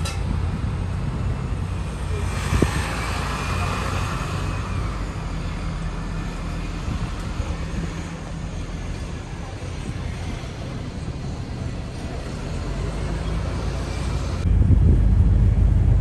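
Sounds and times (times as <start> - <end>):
low rumble: 0.5 - 7.2, 14.2 - 16.0
hiss: 1.6 - 5.4.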